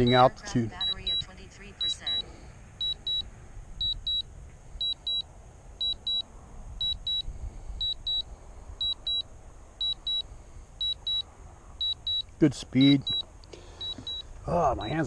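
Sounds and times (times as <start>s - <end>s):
remote controller double beeps: 0.0s - 2.2s, 2.8s - 3.2s, 3.8s - 4.2s, 4.8s - 5.2s, 5.8s - 9.2s, 9.8s - 11.2s, 11.8s - 14.3s
wind rumbling on microphone: 2.3s - 11.9s.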